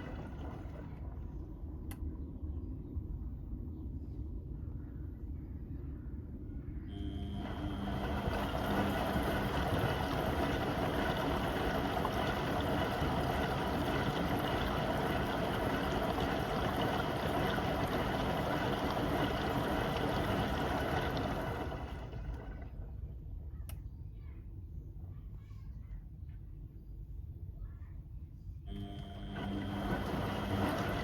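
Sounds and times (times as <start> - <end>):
washing machine running: 0.0 - 1.9, 6.9 - 22.9, 28.7 - 31.0.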